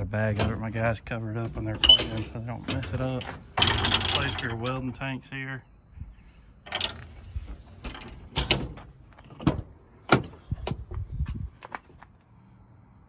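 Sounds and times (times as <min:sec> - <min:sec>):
truck compartment doors clunking: 0:06.7 - 0:11.0.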